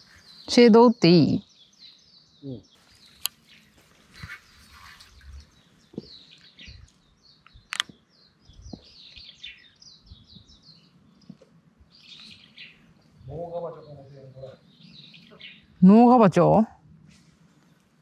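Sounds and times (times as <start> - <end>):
small birds chirping: 0.0 - 18.0
sharp clicks: 7.4 - 8.0.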